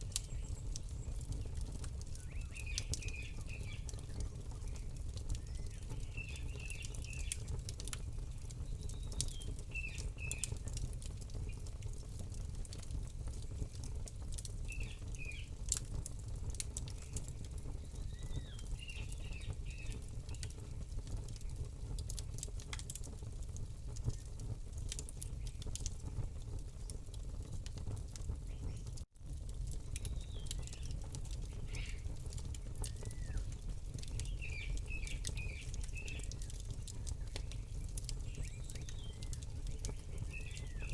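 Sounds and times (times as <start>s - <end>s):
small bird chirping: 0.0s - 7.6s, 8.7s - 10.8s, 17.0s - 20.5s, 30.0s - 32.1s, 32.8s - 40.9s
campfire crackling and popping: 0.0s - 40.9s.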